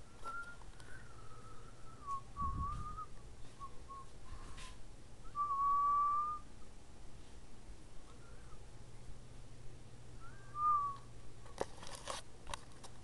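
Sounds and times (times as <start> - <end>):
person whistling: 0.1 - 4.2, 5.2 - 6.5, 10.2 - 11.1.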